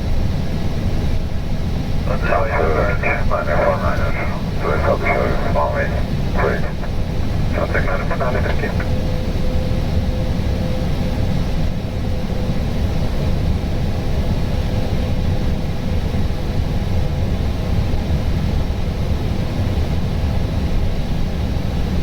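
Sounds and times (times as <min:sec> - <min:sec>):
airflow and engine rumble: 0:01.1 - 0:09.6
faint steady hum: 0:02.0 - 0:09.0.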